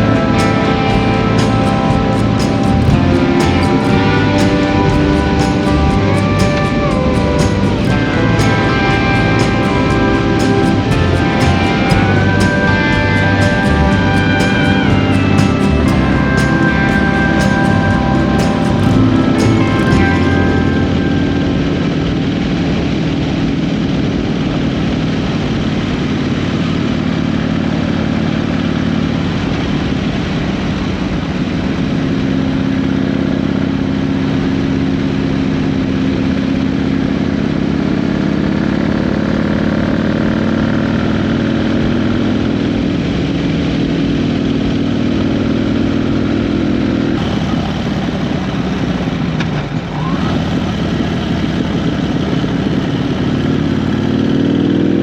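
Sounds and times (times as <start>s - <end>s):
wind noise: 0.0s - 23.6s
motorcycle engine cruising: 0.0s - 55.0s.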